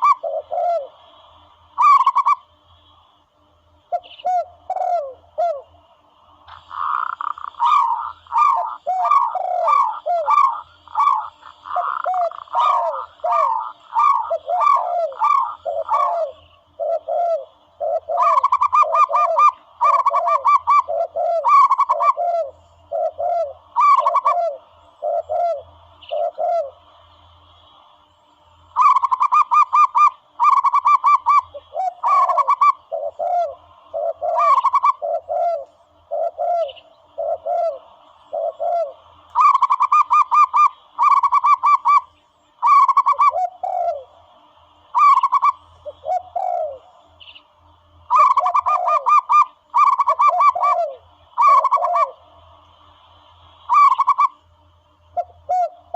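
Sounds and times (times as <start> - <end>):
recorded dove cooing calls: 0.0 - 2.6, 3.9 - 27.1, 28.7 - 52.5, 53.4 - 55.9.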